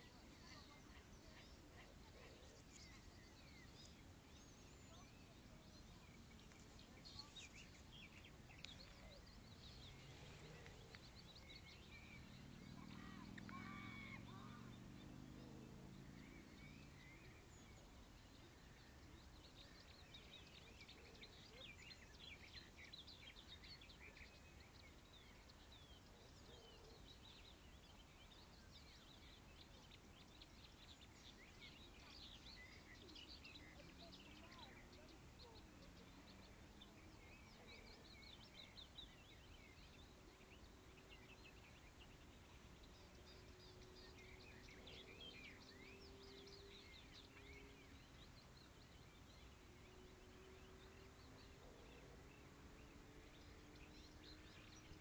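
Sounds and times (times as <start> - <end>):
distant engine hum: 0.0 - 19.6
small birds chirping: 0.0 - 55.0.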